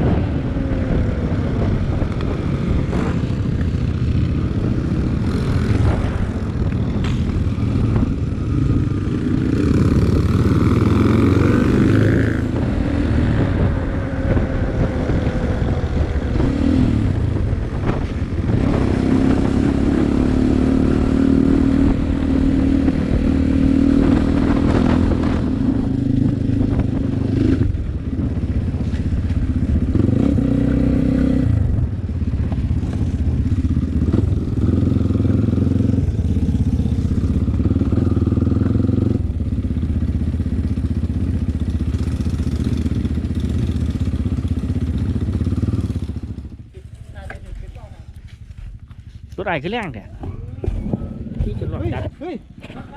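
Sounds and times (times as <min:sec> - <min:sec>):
dirt bike engine revving: 0:07.0 - 0:27.7.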